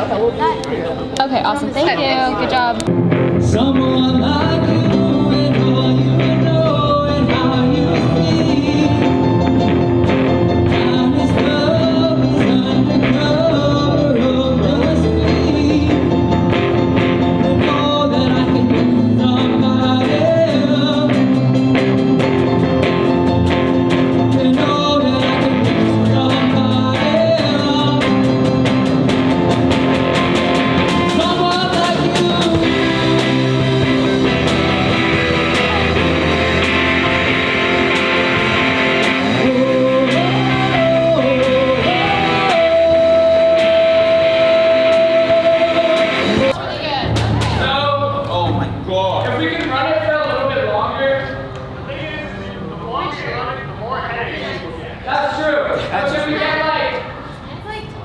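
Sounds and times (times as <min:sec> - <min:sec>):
electric guitar: 0:00.0 - 0:47.6
keyboard: 0:00.0 - 0:57.0
drum kit: 0:02.8 - 0:48.5
person singing into microphone: 0:03.3 - 0:21.8, 0:24.1 - 0:29.0, 0:30.9 - 0:36.0, 0:38.6 - 0:46.6.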